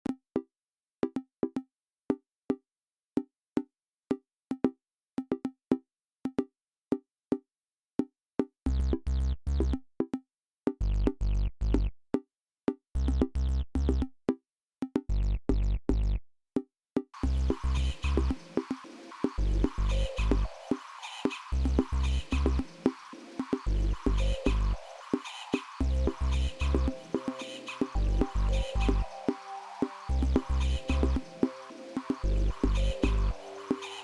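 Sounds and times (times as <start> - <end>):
heavy bass notes: 17.2 - 18.3, 19.4 - 20.5, 23.7 - 24.8, 25.8 - 26.9, 28.0 - 29.0, 30.1 - 31.2, 32.2 - 33.4.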